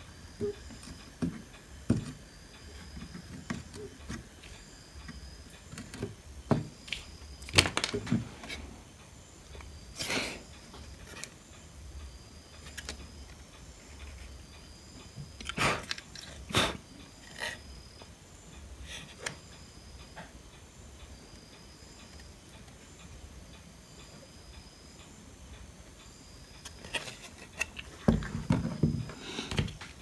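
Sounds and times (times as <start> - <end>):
hand tools clicking and scraping: 0.1 - 8.8, 15.4 - 17.6, 26.6 - 30.0.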